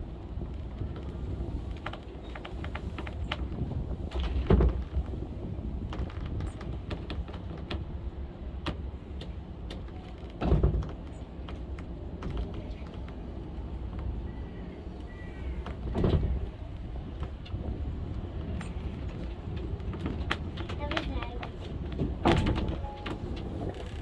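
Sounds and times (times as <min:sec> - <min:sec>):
railway car rumbling on track: 0:00.0 - 0:24.0.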